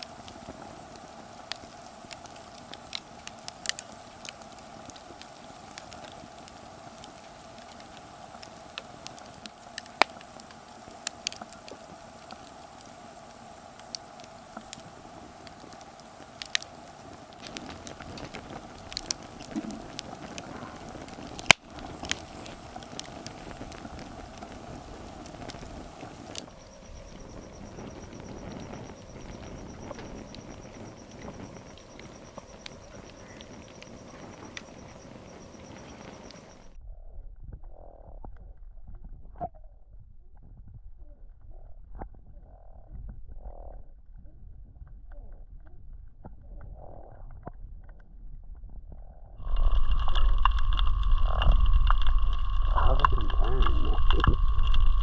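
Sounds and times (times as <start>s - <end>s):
campfire wood crackling: 0.0s - 36.8s, 49.4s - 55.0s
steady hum: 0.0s - 36.8s, 49.4s - 55.0s.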